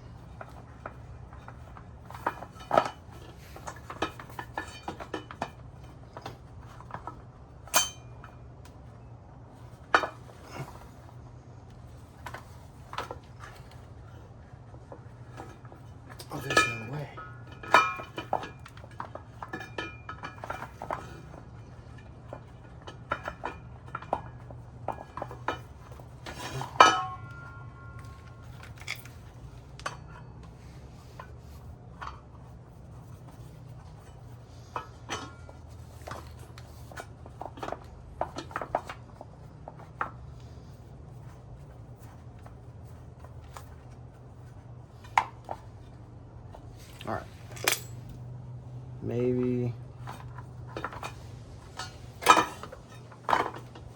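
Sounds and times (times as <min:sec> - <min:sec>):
steady low hum: 0:00.0 - 0:53.9
metal tools clinking: 0:00.4 - 0:08.4, 0:15.3 - 0:32.1, 0:46.7 - 0:48.4, 0:49.1 - 0:53.9.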